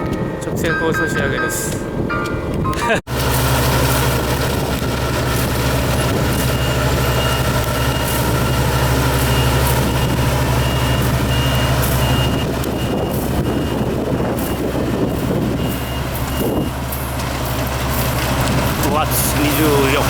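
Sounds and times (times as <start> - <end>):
high warning beep: 0.0 - 3.0, 6.0 - 16.8
combine harvester engine running: 0.0 - 20.0.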